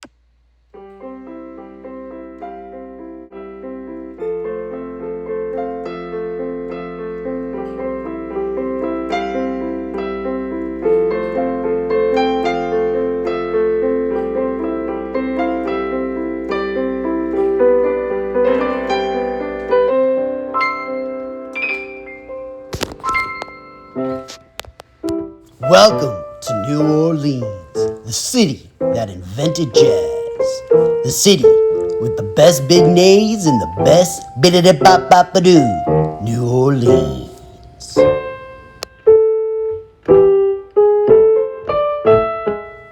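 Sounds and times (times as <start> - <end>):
solo piano music: 0.7 - 42.9.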